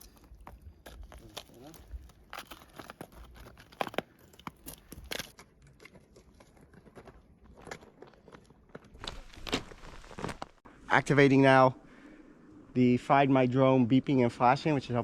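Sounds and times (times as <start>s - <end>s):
footsteps crunching on frozen snow: 6.5s - 10.6s.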